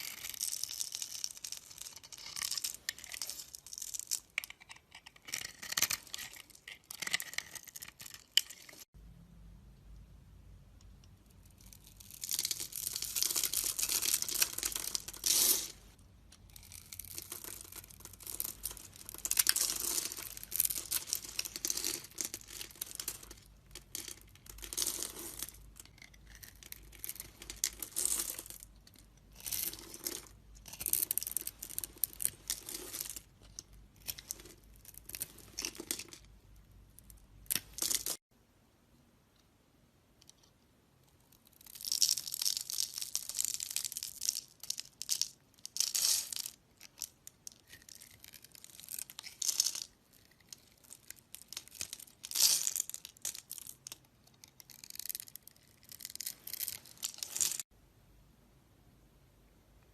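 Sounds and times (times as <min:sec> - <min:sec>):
knife scraping soap: 0:04.4 - 0:08.7.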